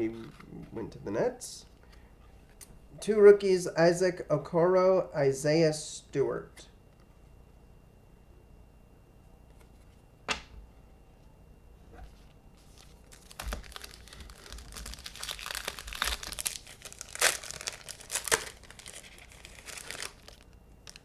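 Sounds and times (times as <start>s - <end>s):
plastic wrapper tearing and crinkling: 12.6s - 21.0s.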